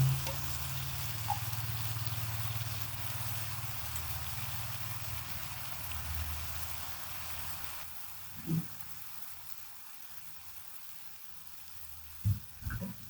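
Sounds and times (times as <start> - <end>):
low steady hum: 0.0 - 2.1
chicken wings sizzling in a pan: 0.0 - 13.0
short low thump: 12.3 - 13.0.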